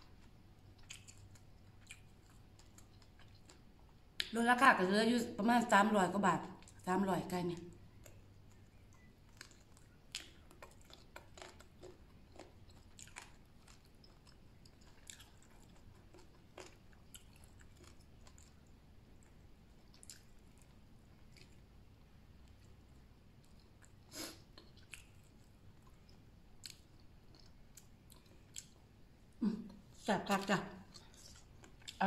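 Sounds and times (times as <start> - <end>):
faint chewing: 0.0 - 4.4, 6.4 - 32.0
small mouth clicks: 0.8 - 2.1.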